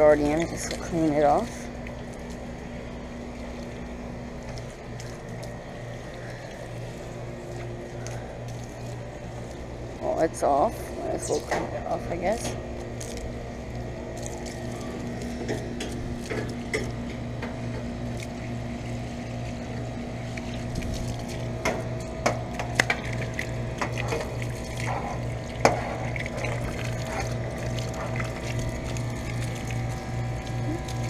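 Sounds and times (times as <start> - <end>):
machine hum with pulsing low note: 0.0 - 31.0
sharp water splashes: 20.3 - 31.0.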